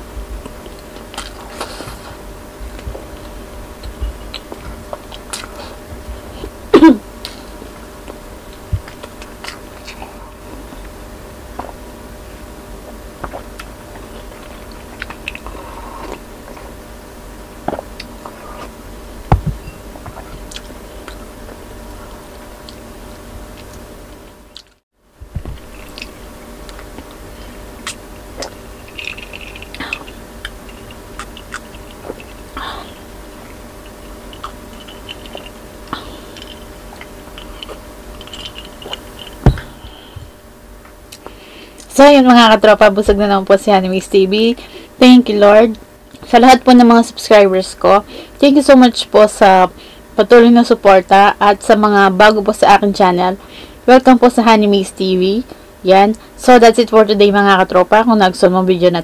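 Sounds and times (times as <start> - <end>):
faint steady hum: 0.0 - 59.0
chewing and lip smacks: 27.8 - 32.5, 33.5 - 39.4.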